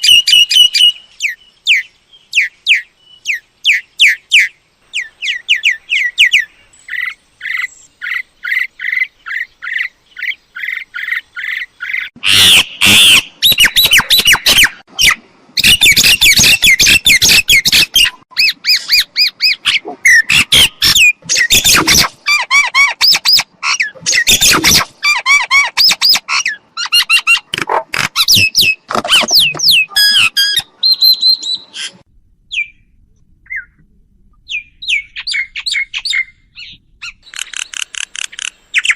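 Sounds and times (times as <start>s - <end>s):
myna calling: 2.4s - 30.7s.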